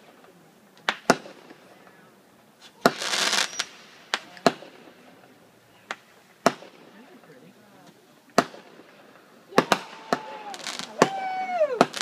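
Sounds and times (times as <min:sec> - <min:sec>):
fireworks bangs: 0:00.0 - 0:07.4, 0:08.3 - 0:12.0
firework hiss: 0:02.6 - 0:05.3, 0:08.3 - 0:12.0.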